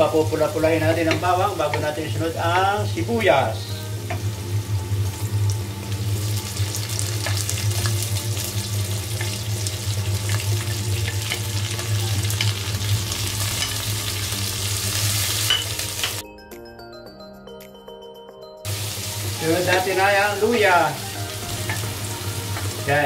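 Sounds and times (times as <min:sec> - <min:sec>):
onions sizzling in hot oil: 0:00.0 - 0:16.2, 0:18.7 - 0:23.0.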